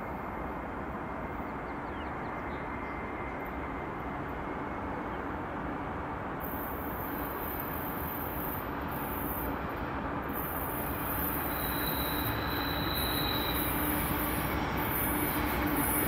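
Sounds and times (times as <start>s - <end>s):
train rumbling on rails: 0.0s - 16.0s
high wheel squeal: 10.4s - 16.0s.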